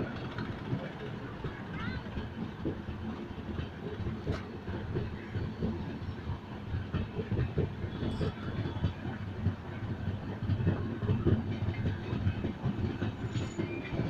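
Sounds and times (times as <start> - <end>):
low knocks from train wheels: 0.0 - 14.0
train rumbling on track: 0.0 - 14.0.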